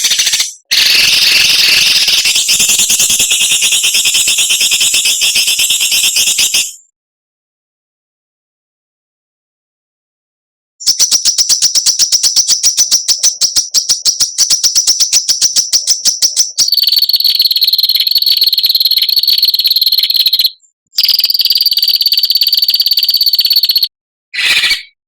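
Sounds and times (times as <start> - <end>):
songbird harsh notes: 0.0 - 2.7, 24.4 - 25.0
high buzzing bird trill: 0.0 - 6.8, 10.8 - 25.0.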